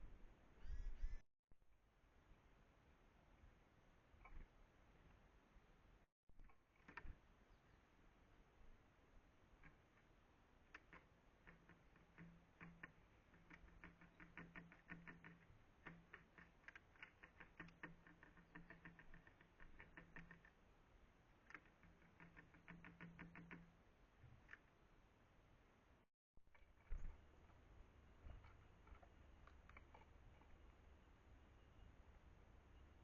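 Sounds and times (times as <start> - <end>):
faint low hum: 0.0 - 33.0
bird pecking light taps: 10.7 - 20.5.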